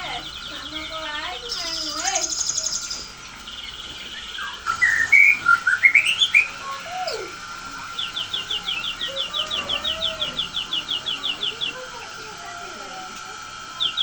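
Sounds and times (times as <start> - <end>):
bird whistled notes: 0.0 - 12.1.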